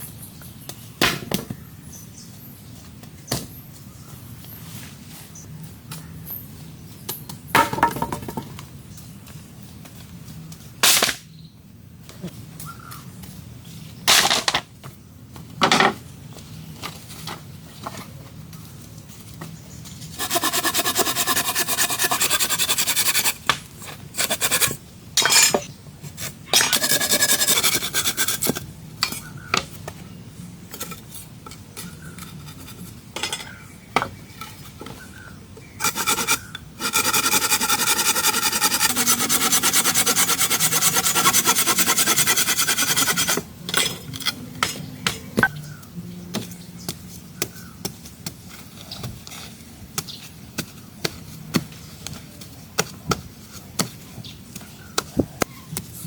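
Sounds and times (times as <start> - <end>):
hand tool scraping wood: 20.1 - 28.6, 35.8 - 43.4.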